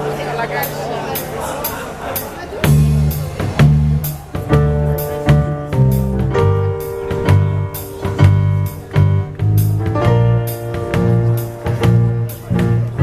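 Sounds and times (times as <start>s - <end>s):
drum kit with cymbals: 0.0s - 13.0s
bass line: 2.6s - 13.0s.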